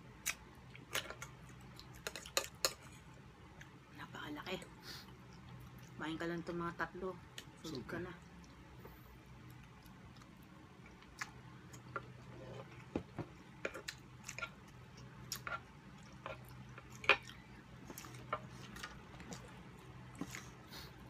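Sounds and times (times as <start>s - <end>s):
low steady hum: 0.0s - 21.0s
chewing and lip smacks: 8.2s - 12.2s.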